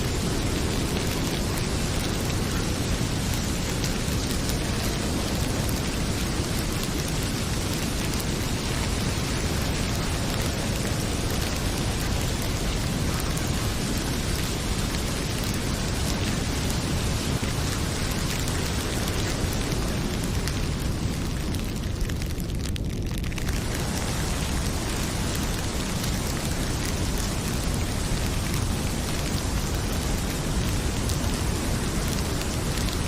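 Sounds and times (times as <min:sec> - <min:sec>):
fireplace crackling: 0:00.0 - 0:33.0
heavy rain pouring: 0:00.0 - 0:33.0.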